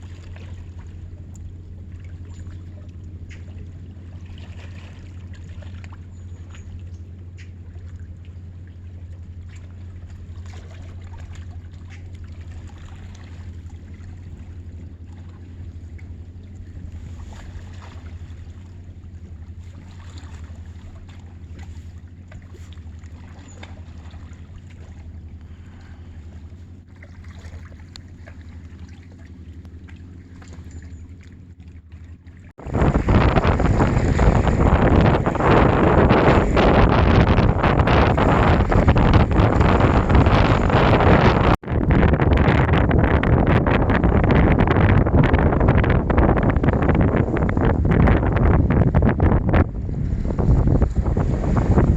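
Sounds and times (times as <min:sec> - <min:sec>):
steady low hum: 0:00.0 - 0:51.9
wind buffeting microphone: 0:32.5 - 0:51.9.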